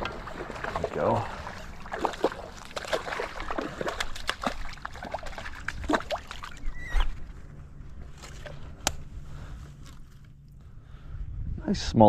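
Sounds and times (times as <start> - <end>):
fish slapping and splashing: 0.0 - 7.1
low wind rumble: 0.0 - 12.0.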